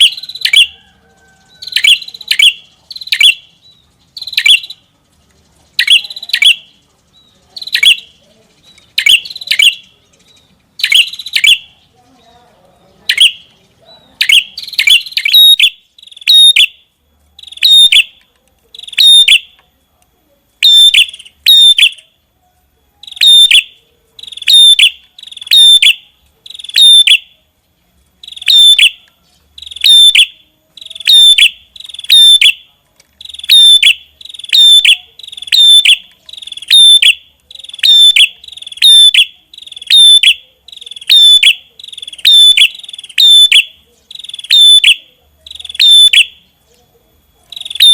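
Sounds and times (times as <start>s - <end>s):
songbird calling sharp high notes: 0.0s - 4.9s, 5.6s - 11.9s, 13.0s - 19.6s, 20.6s - 22.3s, 22.9s - 27.4s, 28.2s - 46.6s, 47.4s - 47.9s.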